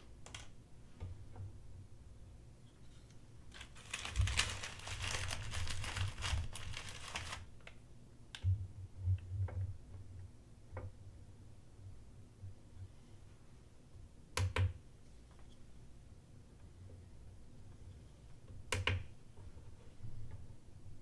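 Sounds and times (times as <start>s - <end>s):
scratchy rustling handling noise: 2.9s - 7.5s.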